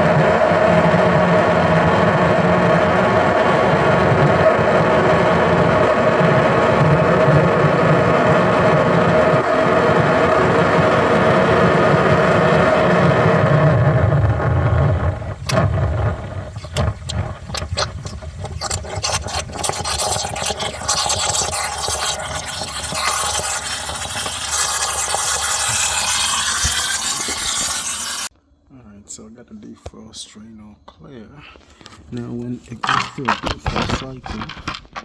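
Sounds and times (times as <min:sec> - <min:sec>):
machine whirring: 0:00.0 - 0:28.3
scraping: 0:14.3 - 0:28.3, 0:31.6 - 0:35.0.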